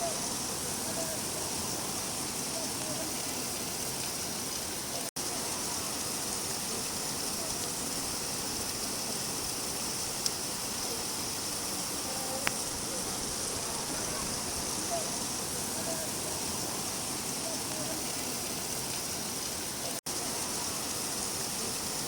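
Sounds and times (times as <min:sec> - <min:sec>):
rain falling: 0:00.0 - 0:22.0
faint drip ticks: 0:08.6 - 0:13.1.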